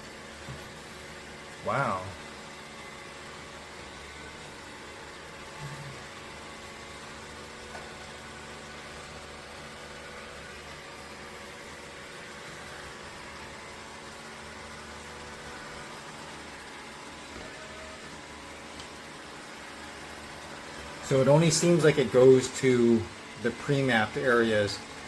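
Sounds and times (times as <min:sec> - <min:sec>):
robot vacuum whirring: 0:20.3 - 0:25.0.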